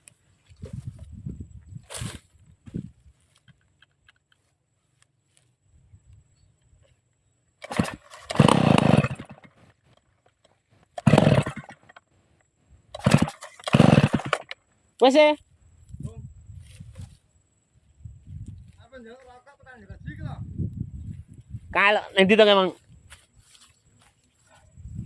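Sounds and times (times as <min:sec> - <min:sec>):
chainsaw engine pull-starting: 0:07.6 - 0:12.1, 0:12.9 - 0:14.7.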